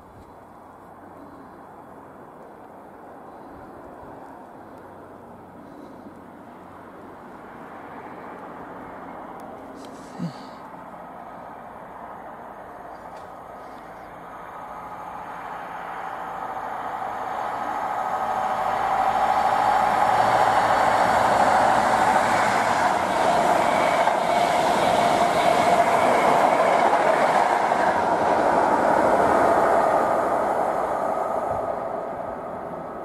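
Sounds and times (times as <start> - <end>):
diesel train passing at speed: 0.0 - 33.0
wheel-on-rail noise: 0.0 - 33.0.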